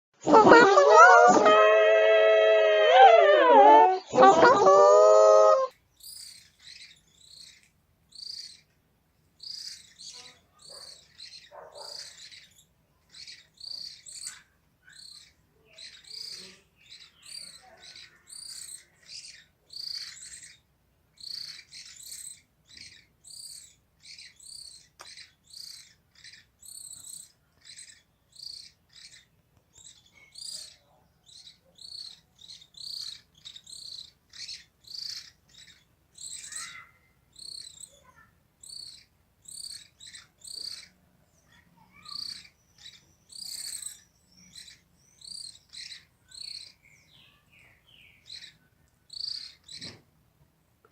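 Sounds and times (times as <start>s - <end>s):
small birds chirping: 2.9s - 50.9s.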